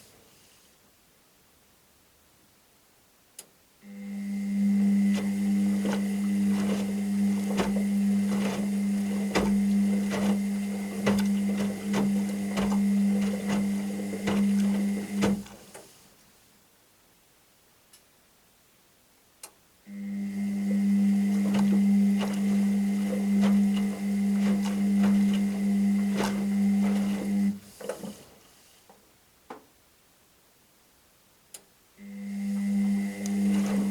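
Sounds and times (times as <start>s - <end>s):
washing machine motor humming: 3.9s - 15.8s, 19.9s - 28.4s, 32.0s - 33.9s
knocks of tumbling laundry: 5.1s - 15.8s, 20.6s - 28.4s, 33.3s - 33.9s
washing machine click: 5.1s - 15.8s.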